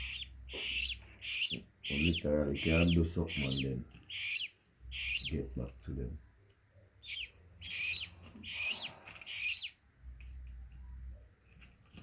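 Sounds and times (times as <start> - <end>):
parrot chicks squawking: 0.0 - 5.6, 7.0 - 9.8
faint low hum: 0.0 - 12.0.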